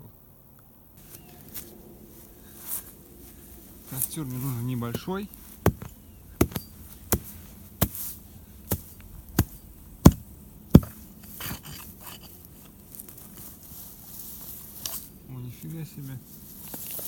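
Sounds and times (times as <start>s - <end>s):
rustling: 1.0s - 17.0s
sharp chopping strikes: 4.9s - 8.1s, 8.7s - 11.0s.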